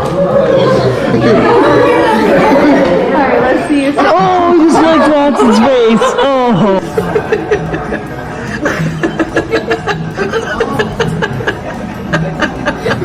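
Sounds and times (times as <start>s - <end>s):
laughter in bursts: 4.7s - 13.0s.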